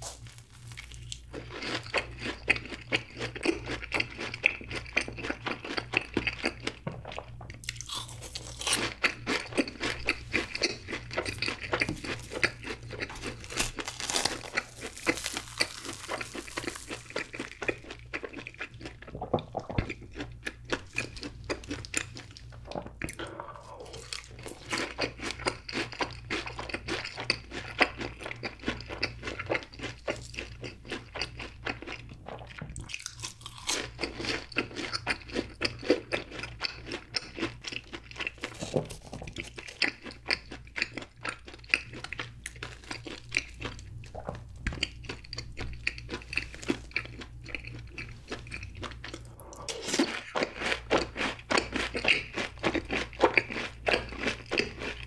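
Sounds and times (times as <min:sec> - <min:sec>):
crunchy chewing: 0:00.0 - 0:55.0.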